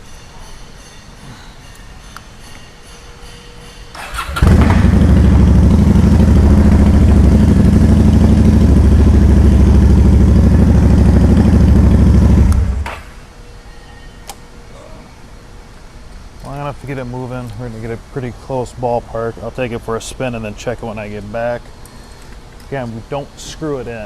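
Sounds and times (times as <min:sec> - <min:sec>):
motorcycle engine starting and running: 0:04.0 - 0:12.9.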